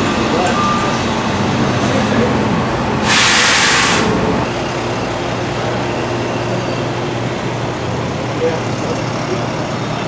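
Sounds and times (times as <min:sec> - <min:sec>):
loud hiss: 0:03.0 - 0:04.1.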